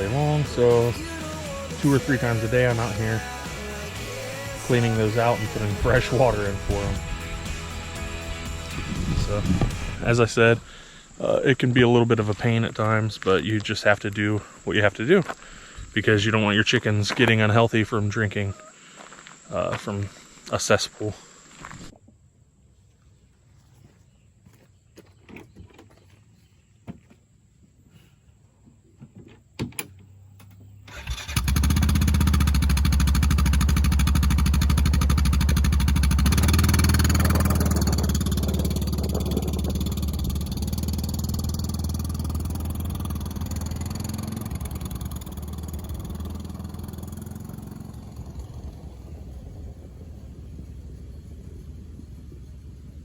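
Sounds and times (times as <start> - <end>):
engine starting and running: 0.0 - 11.6, 30.4 - 53.0.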